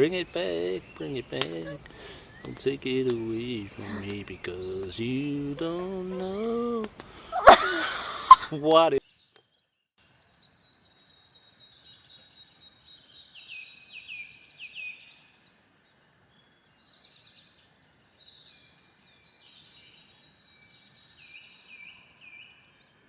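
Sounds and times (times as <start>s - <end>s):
faint hiss: 0.0s - 9.0s
songbirds singing: 0.0s - 23.0s.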